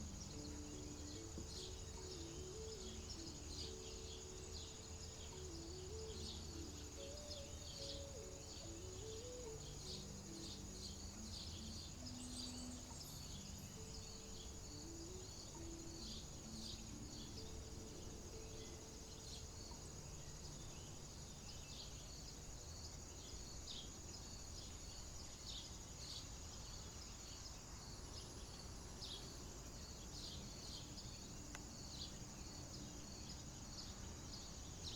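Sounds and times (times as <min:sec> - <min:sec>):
soft low held tones: 0:00.0 - 0:22.6
high-pitched insect drone: 0:00.0 - 0:25.1.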